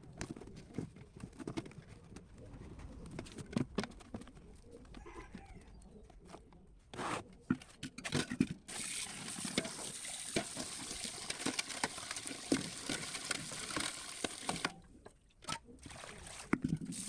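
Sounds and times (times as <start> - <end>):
water running from a tap: 8.7 - 14.7.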